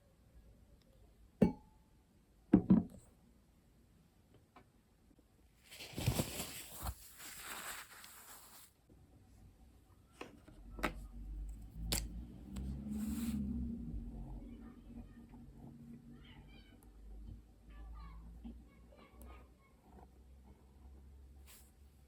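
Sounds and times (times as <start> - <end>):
paper rustling: 5.6 - 8.8.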